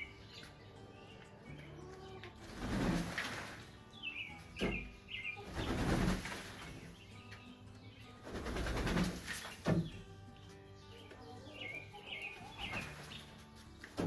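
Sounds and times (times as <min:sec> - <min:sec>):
chickens flapping wings: 0:02.4 - 0:03.7, 0:05.4 - 0:06.9, 0:08.2 - 0:09.8, 0:12.3 - 0:14.0
chicken chirps: 0:11.0 - 0:13.4.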